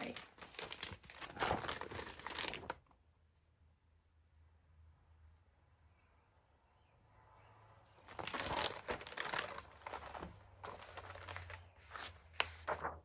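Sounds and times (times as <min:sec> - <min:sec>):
paper pages rustling and turning: 0:00.0 - 0:02.8, 0:08.1 - 0:13.0.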